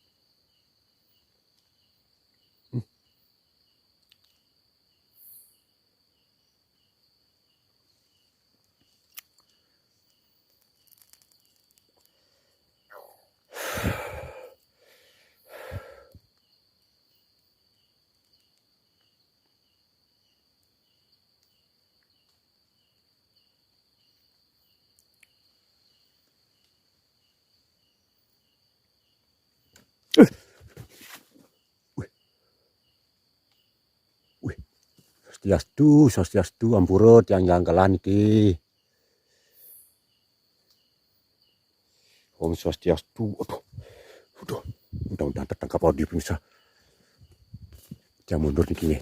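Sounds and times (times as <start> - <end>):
insects chirping: 0.0 - 49.0
insects trilling: 0.0 - 49.0.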